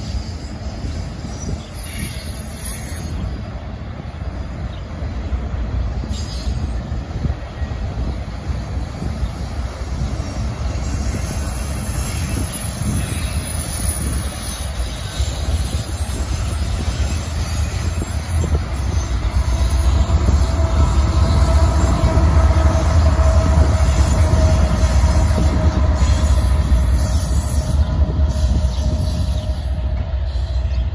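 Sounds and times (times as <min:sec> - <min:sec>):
faint steady locomotive whine: 0:00.0 - 0:30.9
train wheels rumbling on rail: 0:00.0 - 0:30.9.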